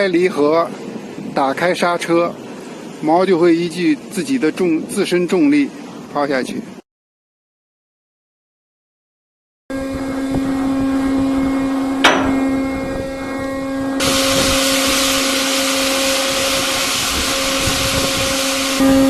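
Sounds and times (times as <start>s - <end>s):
deck machinery humming: 9.7s - 19.0s
sharp metallic clank: 12.0s - 12.6s
loud steady hiss: 14.0s - 19.0s.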